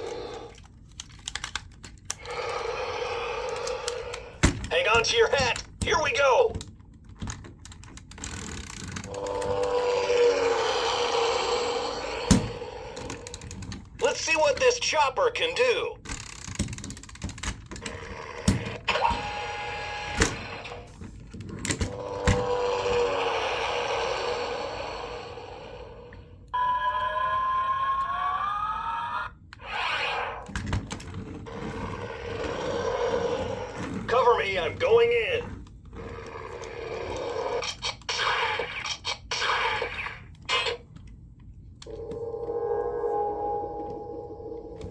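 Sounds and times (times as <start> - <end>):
toy helicopter whirring hum: 8.3 - 13.6, 21.8 - 26.4
electronic tone rising in pitch: 41.9 - 44.9.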